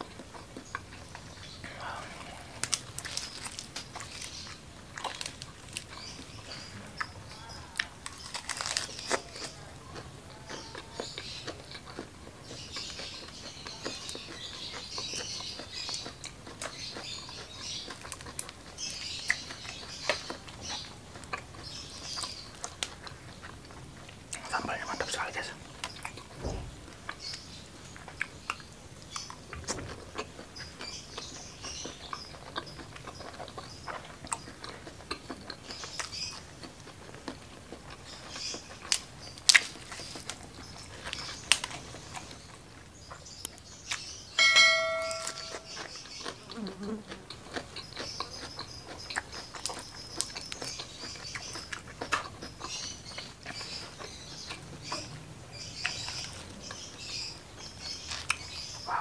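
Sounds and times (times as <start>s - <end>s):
chewing crunchy fried food: 0.0s - 44.4s, 45.1s - 59.0s
brief ringing tone: 44.4s - 45.7s.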